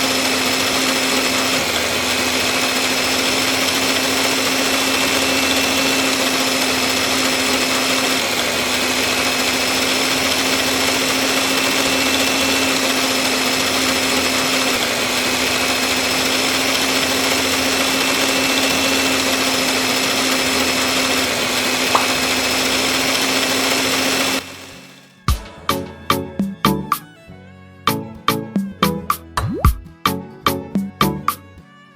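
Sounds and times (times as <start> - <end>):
small saw motor whining: 0.0 - 25.3.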